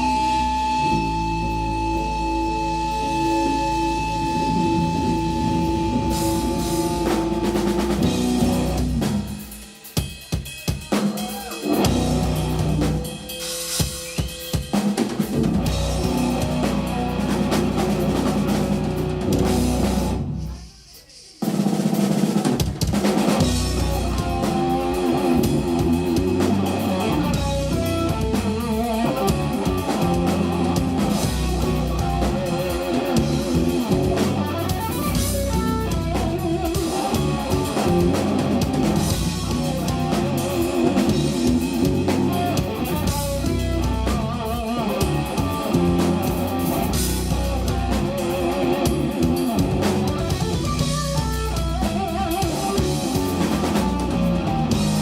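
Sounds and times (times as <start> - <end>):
jazz-rock band playing: 0.0 - 20.6, 21.8 - 55.0.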